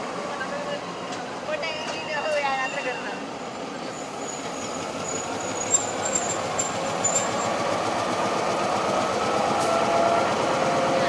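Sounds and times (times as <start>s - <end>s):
diesel train engine running: 3.2s - 11.0s.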